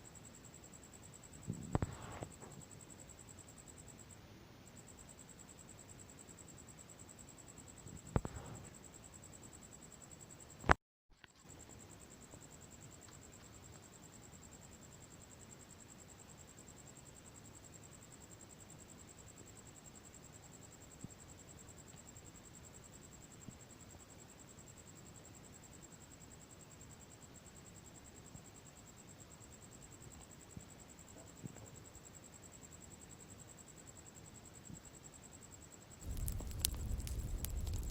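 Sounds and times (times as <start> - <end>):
crickets chirring: 31.8 - 37.9
bonfire crackling: 36.0 - 37.9.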